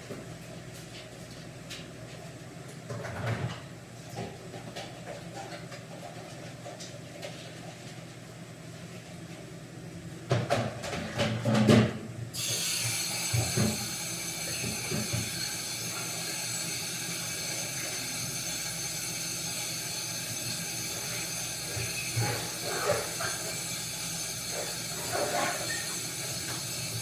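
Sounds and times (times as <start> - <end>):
food hissing on a stove: 12.4 - 27.0.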